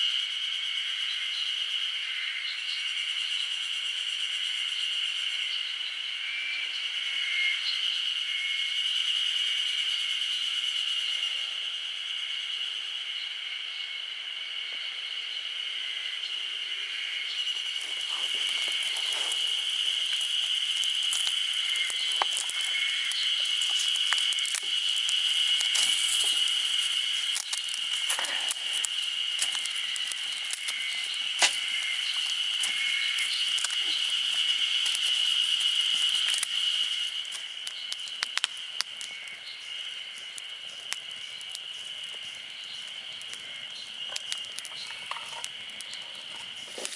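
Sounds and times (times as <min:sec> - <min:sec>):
high-pitched insect chorus: 0:00.0 - 0:46.9
sharp crackles and clicks: 0:17.4 - 0:46.9.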